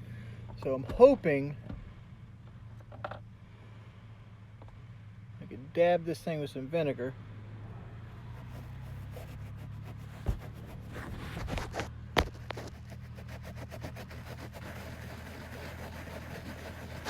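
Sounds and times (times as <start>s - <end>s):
sharp clicks and knocks: 10.2s - 13.0s.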